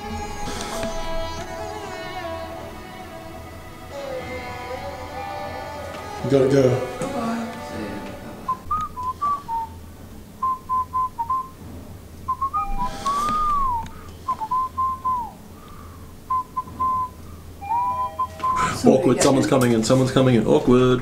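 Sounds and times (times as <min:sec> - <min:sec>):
person whistling: 0:08.5 - 0:09.8, 0:10.4 - 0:11.6, 0:12.3 - 0:15.4, 0:16.3 - 0:18.9.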